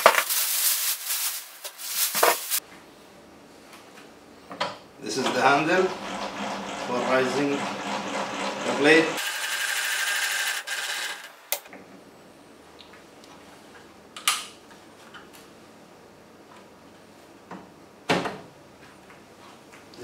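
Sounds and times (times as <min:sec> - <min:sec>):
handwheel cranking whir: 0:05.8 - 0:11.3.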